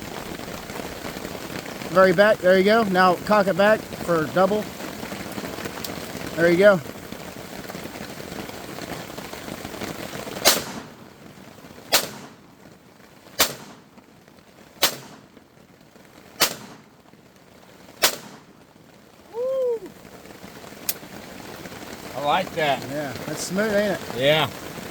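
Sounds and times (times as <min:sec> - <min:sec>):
rain pattering: 0:00.0 - 0:24.9
pistol shots: 0:10.4 - 0:11.0, 0:11.9 - 0:12.4, 0:13.4 - 0:13.9, 0:14.8 - 0:15.3, 0:16.4 - 0:16.9, 0:18.0 - 0:18.5.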